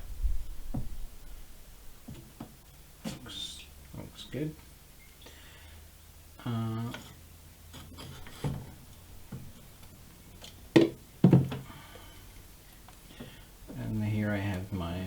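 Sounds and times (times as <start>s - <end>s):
faint low hum: 0.0s - 15.0s
knocks and clunks: 10.7s - 11.7s.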